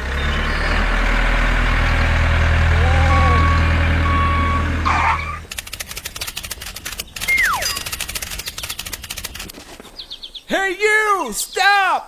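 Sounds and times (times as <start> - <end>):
vehicle engine rumbling: 0.0 - 9.5
short beeps: 2.9 - 5.4
rapid clicking: 5.4 - 9.6.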